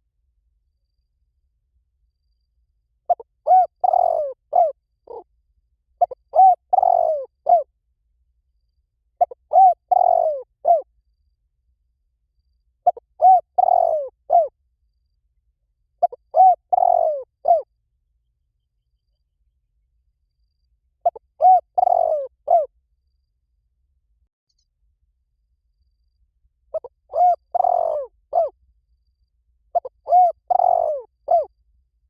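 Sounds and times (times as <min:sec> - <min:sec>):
dove cooing: 0:03.1 - 0:05.3, 0:06.0 - 0:07.7, 0:09.2 - 0:10.9, 0:12.8 - 0:14.5, 0:16.0 - 0:17.7, 0:21.0 - 0:22.7, 0:26.7 - 0:28.5, 0:29.8 - 0:31.5.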